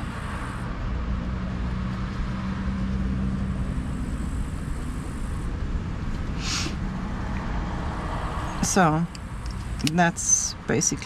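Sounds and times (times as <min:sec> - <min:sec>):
faint hum: 0:00.0 - 0:11.0
low rumble with hiss: 0:00.0 - 0:11.0
brushing or rustling hiss: 0:06.3 - 0:06.9.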